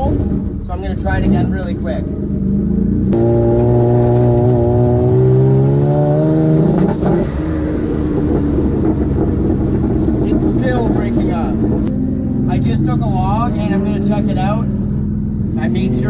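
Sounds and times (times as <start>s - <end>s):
turbocharged engine accelerating: 0.0s - 16.0s.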